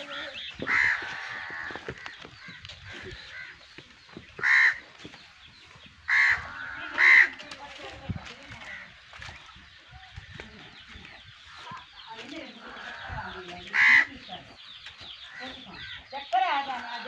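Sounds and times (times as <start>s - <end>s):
bird calling: 0.0s - 17.0s.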